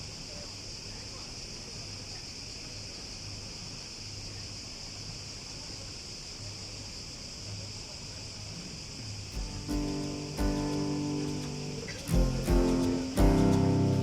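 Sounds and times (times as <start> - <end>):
insects chirring: 0.0 - 14.0
low ambient hum: 9.3 - 14.0
acoustic guitar music: 9.4 - 14.0.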